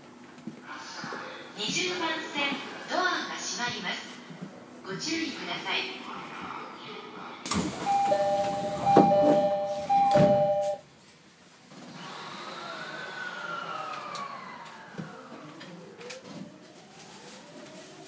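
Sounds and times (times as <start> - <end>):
train low rumble: 0.0 - 11.6
doors shutting with thumps: 7.5 - 10.6
two-tone door chime: 7.9 - 10.8
faint whine rising and falling: 12.0 - 17.9.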